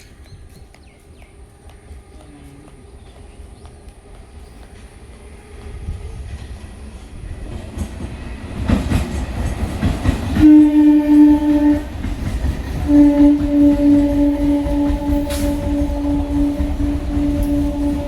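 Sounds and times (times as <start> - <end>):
train rumble and wheel clatter: 0.0 - 18.0
train horn blast: 10.4 - 18.0.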